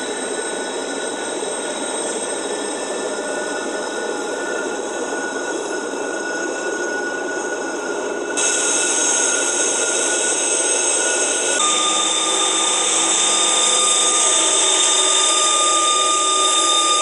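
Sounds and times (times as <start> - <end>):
high wheel squeal: 0.0 - 17.0
high hiss: 8.4 - 17.0.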